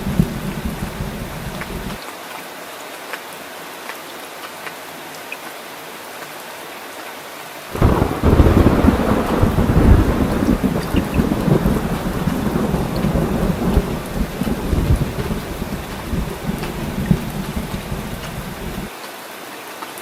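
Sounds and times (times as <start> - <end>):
rumble of thunder: 0.0 - 2.0, 7.8 - 18.9
steady rain: 0.0 - 20.0.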